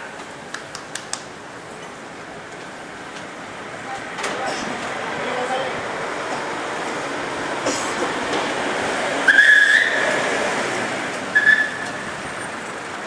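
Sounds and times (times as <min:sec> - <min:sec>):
street traffic noise: 0:00.0 - 0:13.0
whistle blasts: 0:09.3 - 0:10.1, 0:11.4 - 0:12.0.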